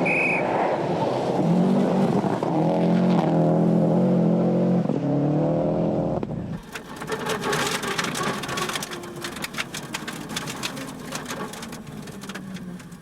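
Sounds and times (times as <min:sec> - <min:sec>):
dense crackle of clicks: 0:06.6 - 0:13.0.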